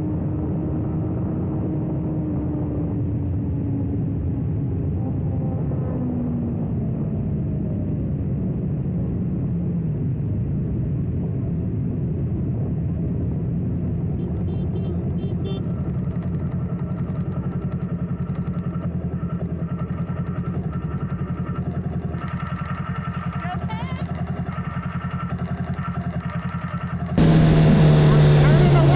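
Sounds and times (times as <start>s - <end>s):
wind and road noise: 0.0s - 28.9s
motorcycle engine running: 7.2s - 28.9s.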